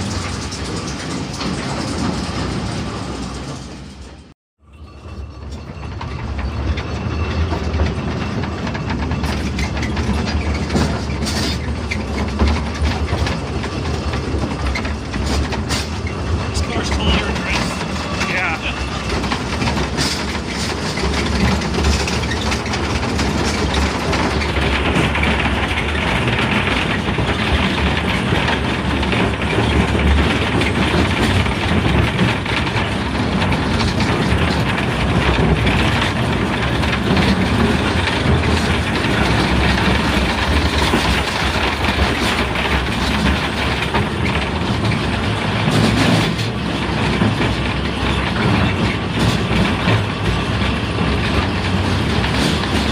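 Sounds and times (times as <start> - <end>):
rail cars rumbling on track: 0.0 - 52.9.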